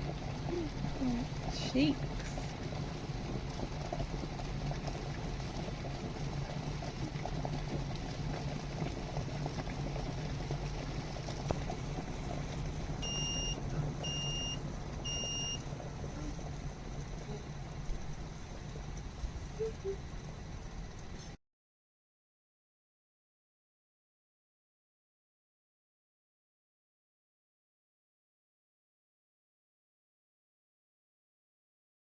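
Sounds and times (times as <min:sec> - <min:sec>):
kettle water bubbling: 0:00.0 - 0:21.4
kettle short high beeps: 0:13.0 - 0:15.6.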